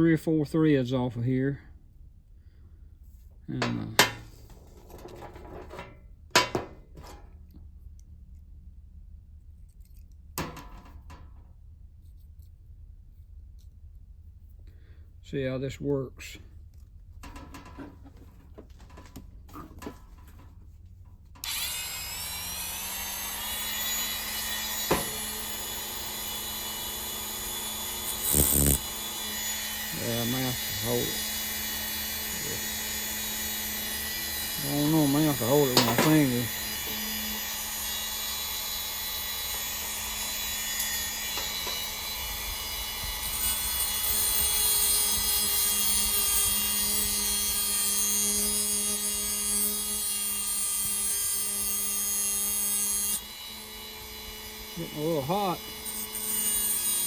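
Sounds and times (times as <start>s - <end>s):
power tool motor whining: 21.4s - 57.0s.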